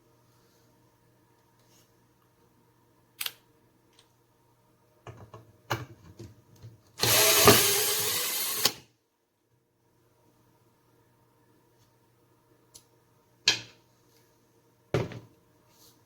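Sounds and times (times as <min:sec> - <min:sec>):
cordless drill running: 0:07.0 - 0:08.8.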